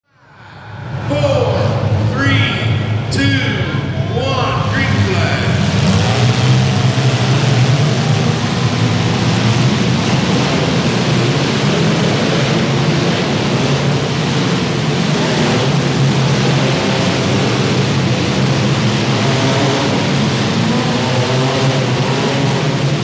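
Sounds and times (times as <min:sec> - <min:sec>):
many car engines running: 0:00.2 - 0:23.0.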